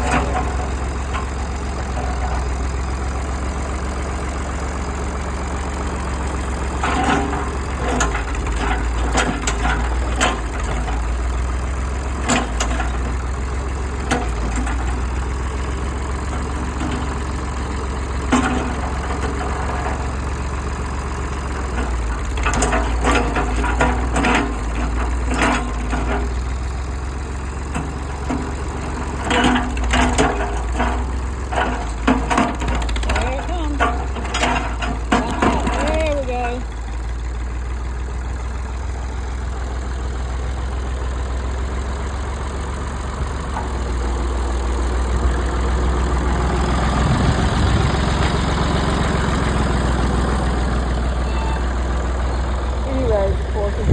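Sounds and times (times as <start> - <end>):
tractor engine running: 0.0 - 53.9.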